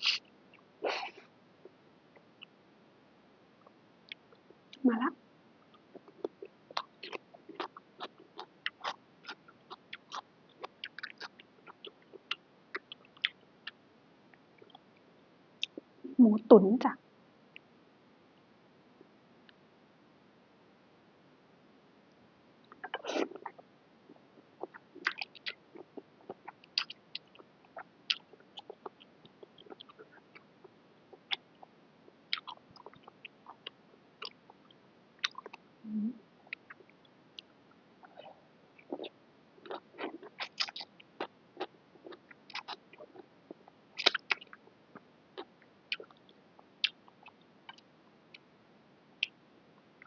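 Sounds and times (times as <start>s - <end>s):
close chewing mouth clicks: 0.0s - 0.2s, 5.7s - 13.8s, 22.7s - 30.5s, 31.1s - 35.6s, 36.5s - 38.2s, 38.8s - 44.6s, 45.4s - 47.8s
wet slurp: 0.0s - 0.2s.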